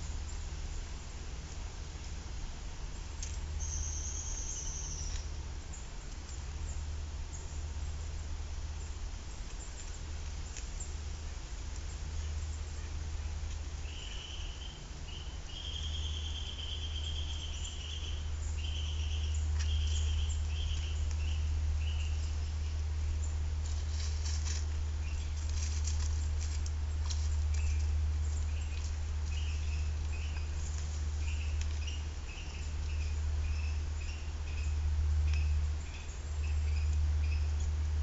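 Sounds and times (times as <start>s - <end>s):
steady low rumble: 0.0s - 38.0s.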